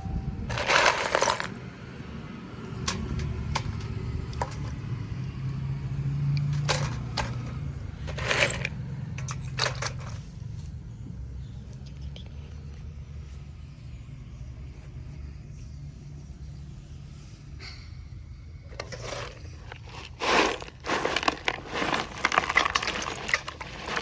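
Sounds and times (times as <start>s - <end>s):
clay cups cracking: 0.5s - 1.6s, 18.7s - 24.0s.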